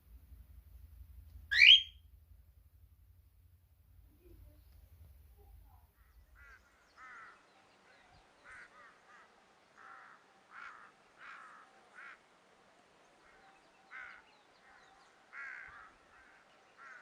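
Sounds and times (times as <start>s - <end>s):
faint low rumble: 0.0s - 16.9s
bird calling: 1.5s - 2.0s, 5.5s - 12.2s, 13.2s - 17.0s.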